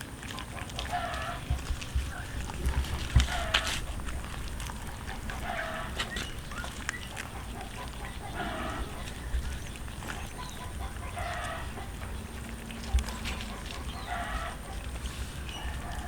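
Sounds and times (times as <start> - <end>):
short animal calls: 5.3 - 9.2.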